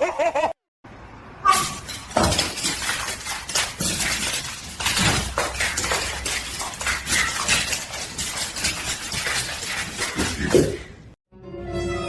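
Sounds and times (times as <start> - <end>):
hard objects clattering: 1.6 - 11.1.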